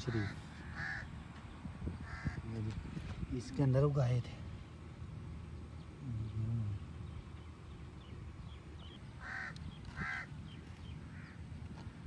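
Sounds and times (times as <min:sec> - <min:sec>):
bird calling: 0:00.0 - 0:02.6, 0:05.5 - 0:12.0.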